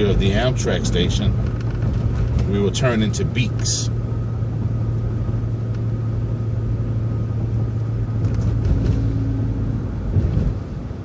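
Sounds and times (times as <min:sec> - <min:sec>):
bus engine drone: 0:00.0 - 0:11.0
faint clicks and rattles: 0:01.2 - 0:02.6.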